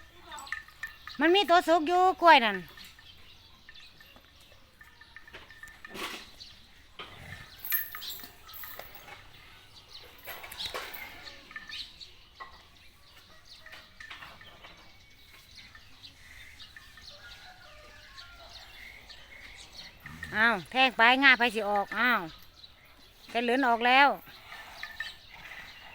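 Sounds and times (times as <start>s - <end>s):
bird chirps: 0.0s - 25.9s.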